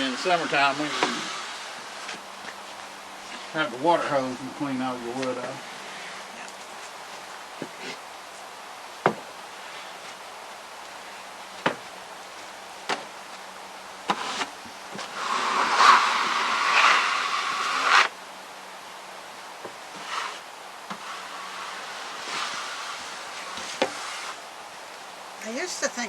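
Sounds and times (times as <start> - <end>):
loud scraping rushing noise: 0.0 - 2.1, 14.1 - 18.1
boards knocking when stacked: 9.0 - 9.3, 11.6 - 11.9.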